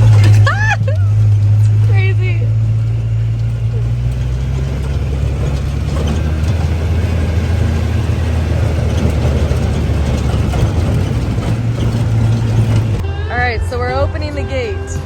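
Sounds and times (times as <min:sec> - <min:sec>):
vehicle body rattling over bumps: 0:00.0 - 0:15.0
vehicle engine droning: 0:00.0 - 0:15.0.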